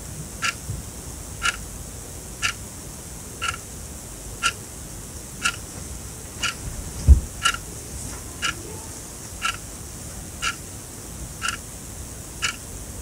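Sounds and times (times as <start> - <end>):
low thump: 7.0 - 7.4.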